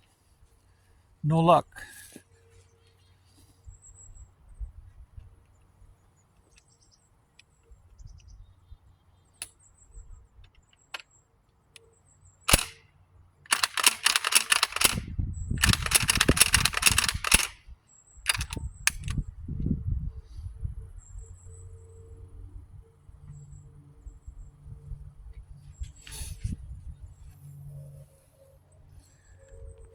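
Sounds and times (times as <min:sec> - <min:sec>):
shotgun shot: 0:12.5 - 0:12.8.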